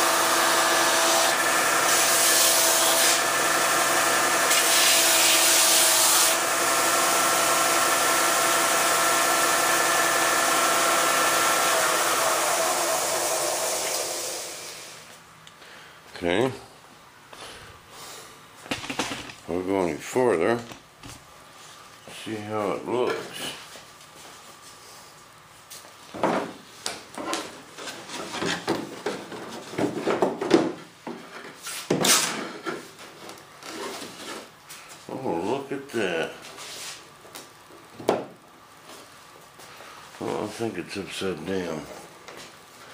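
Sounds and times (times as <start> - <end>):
electric sander running: 0.0 - 15.0.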